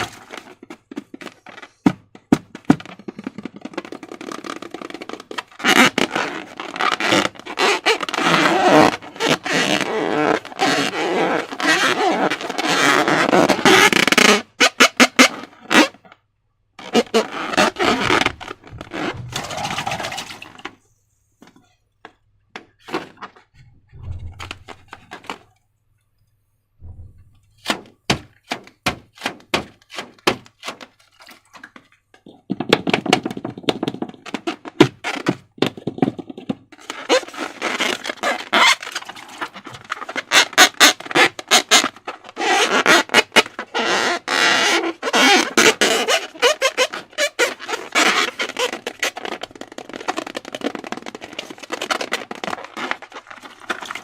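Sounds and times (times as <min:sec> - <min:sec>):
slime squishing by hand: 0:16.8 - 0:20.8.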